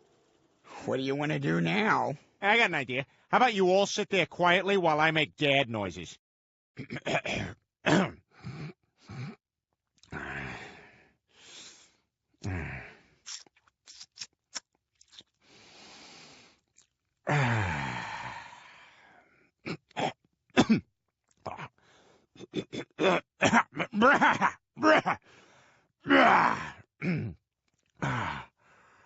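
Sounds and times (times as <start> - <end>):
man grunting and humming: 1.4 - 1.9, 10.0 - 10.7, 12.4 - 12.9, 17.3 - 18.5, 21.4 - 21.7, 22.4 - 25.2, 26.1 - 27.4, 28.0 - 28.5
man groaning sigh: 12.4 - 13.0, 17.3 - 18.8, 26.1 - 27.3, 28.0 - 28.5
mouth clicks and smacks: 13.2 - 15.4, 16.6 - 17.0
man exhaling breathily: 17.3 - 19.2.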